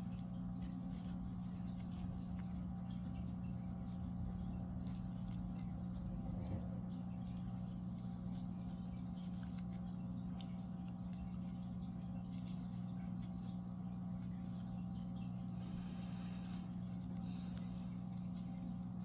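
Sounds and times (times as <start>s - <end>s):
crochet hook and yarn rustling: 0.0s - 11.6s, 12.2s - 15.6s
low electrical hum: 0.0s - 19.0s.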